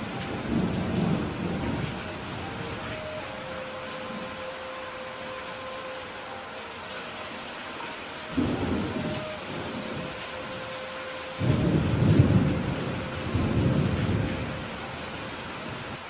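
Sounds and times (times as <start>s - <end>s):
thunder rumbling: 0.0s - 4.4s, 8.3s - 16.0s
steady rain falling: 0.0s - 16.0s.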